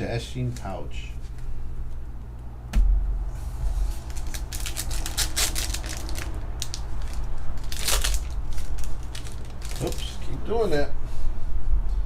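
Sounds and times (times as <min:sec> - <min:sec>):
steady low hum: 0:00.0 - 0:12.0
foil card wrappers crinkling: 0:03.9 - 0:10.4.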